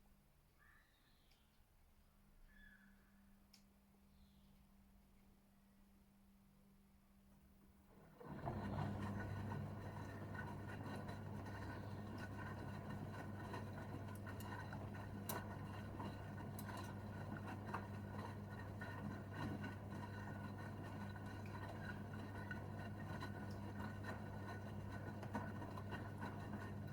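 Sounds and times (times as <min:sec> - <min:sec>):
washing machine running: 0:07.8 - 0:26.9.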